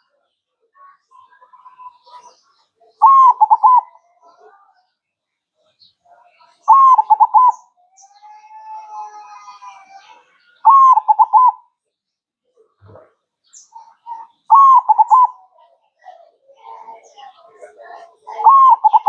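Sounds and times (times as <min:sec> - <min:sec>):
dove cooing: 0:03.0 - 0:04.0, 0:06.7 - 0:07.6, 0:10.6 - 0:11.6, 0:14.0 - 0:15.4, 0:17.8 - 0:19.0.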